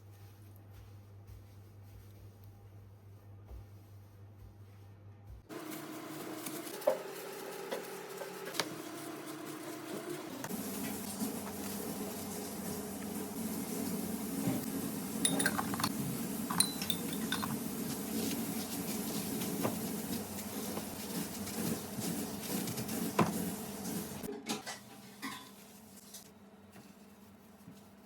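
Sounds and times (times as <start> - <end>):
metal utensils clinking on dishes: 15.2 - 17.6.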